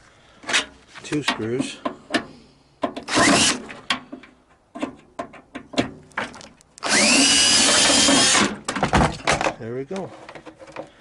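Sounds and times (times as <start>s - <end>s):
power drill whining: 3.1s - 3.6s, 6.8s - 8.5s.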